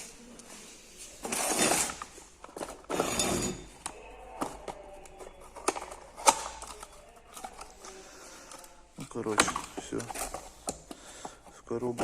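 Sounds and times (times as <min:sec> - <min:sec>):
boxes clicking and knocking: 0:01.2 - 0:07.8, 0:09.0 - 0:12.0.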